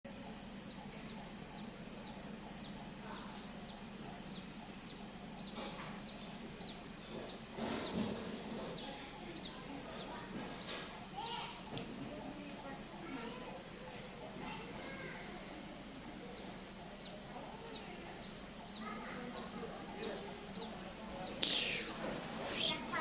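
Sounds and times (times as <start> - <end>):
high insect drone: 0.1 - 23.0
bird chirping: 0.2 - 10.8
rustle: 0.2 - 23.0.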